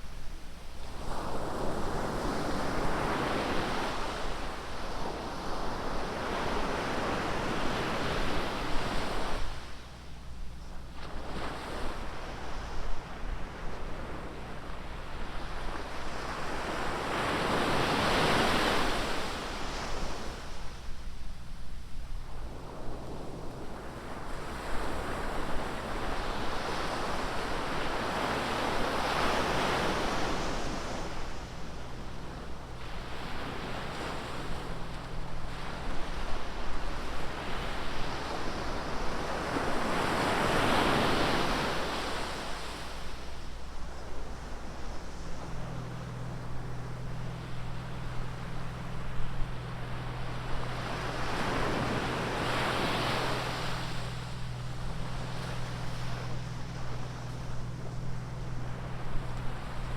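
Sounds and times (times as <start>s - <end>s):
waves breaking on beach: 24.4s - 59.9s.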